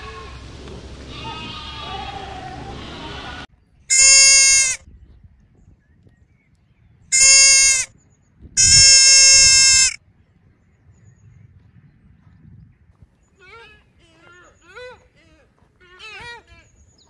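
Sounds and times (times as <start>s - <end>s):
animal bleating: 1.1s - 4.8s, 7.1s - 7.9s, 8.6s - 10.0s, 13.4s - 16.7s.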